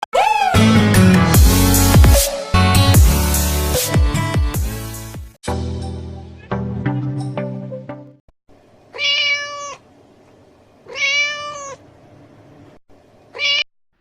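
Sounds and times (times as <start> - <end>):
music: 0.5 - 8.2
cat meowing: 8.9 - 9.9, 10.8 - 11.8, 13.3 - 13.7.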